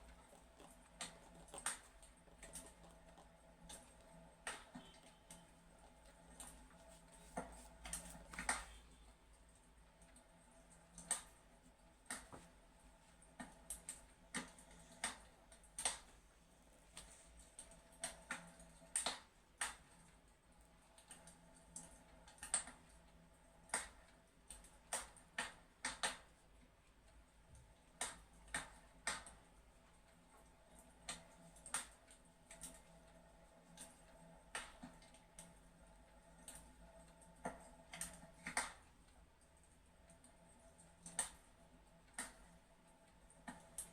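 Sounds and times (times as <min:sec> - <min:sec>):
low steady hum: 0:00.0 - 0:25.4.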